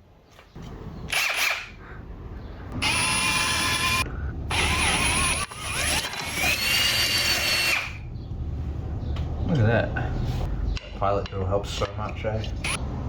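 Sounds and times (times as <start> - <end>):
power drill boring through metal: 1.1 - 1.8, 2.8 - 8.0.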